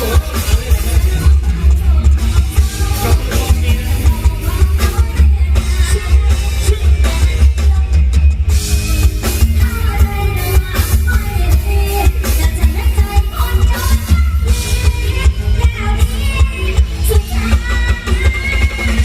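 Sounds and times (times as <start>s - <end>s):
person singing: 0.0s - 8.2s
drum kit: 0.0s - 19.0s
heavy bass: 0.0s - 19.0s
string band music over loudspeakers: 0.0s - 19.0s.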